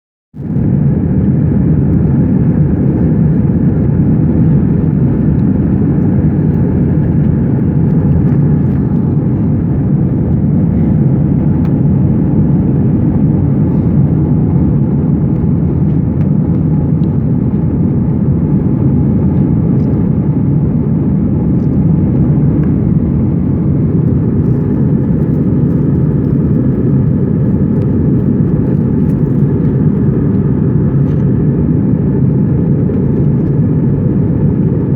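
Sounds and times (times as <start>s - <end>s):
airplane cabin engine noise: 0.4s - 34.9s.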